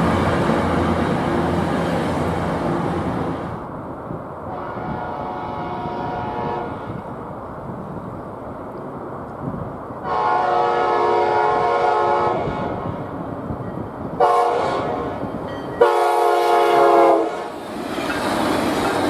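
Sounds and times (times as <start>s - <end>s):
train rumbling: 0.0s - 19.0s
train air horn blasts: 4.5s - 7.0s, 10.0s - 12.9s, 14.2s - 15.2s, 15.8s - 17.6s.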